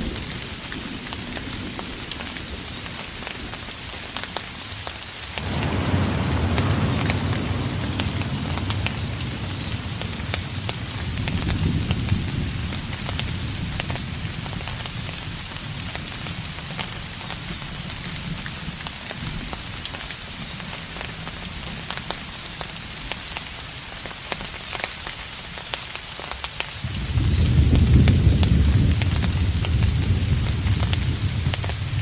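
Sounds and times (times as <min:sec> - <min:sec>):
steady rain falling: 0:00.0 - 0:32.0
distant thunder rumble: 0:05.4 - 0:16.0, 0:26.8 - 0:32.0.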